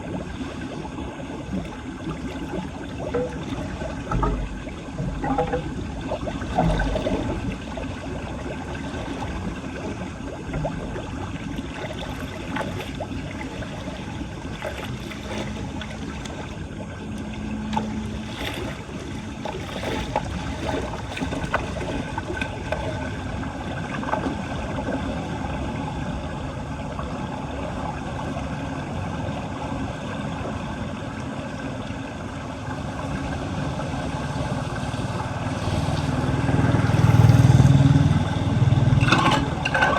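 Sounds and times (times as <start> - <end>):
water gurgling into storm drain: 0.0 - 39.9
small knocks: 3.1 - 7.4.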